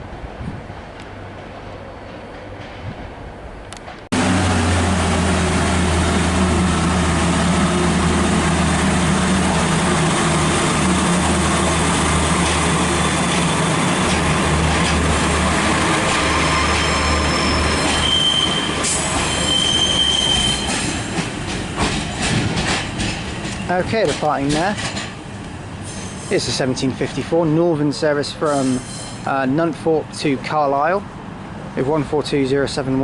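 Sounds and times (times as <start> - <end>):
diesel railcar engine droning: 0.0 - 33.0
high wheel squeal: 12.6 - 14.3, 15.8 - 21.0, 25.8 - 26.5, 28.5 - 29.3.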